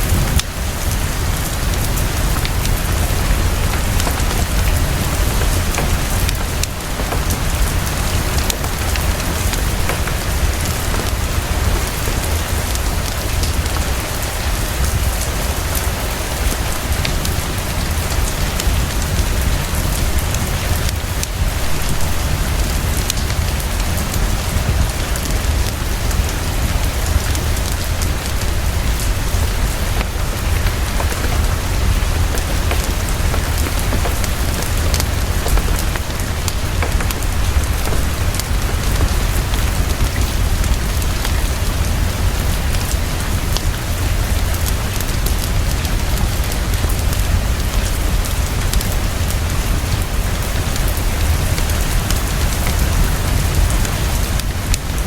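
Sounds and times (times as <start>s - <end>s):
deep constant rumble: 0.0s - 13.9s
soft fireplace crackle: 0.0s - 47.6s
heavy rainfall: 0.0s - 55.0s.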